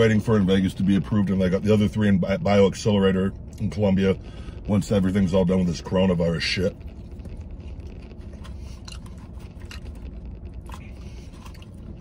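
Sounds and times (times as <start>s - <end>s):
low hum of truck cab: 0.0s - 12.0s
man chewing food: 6.8s - 12.0s.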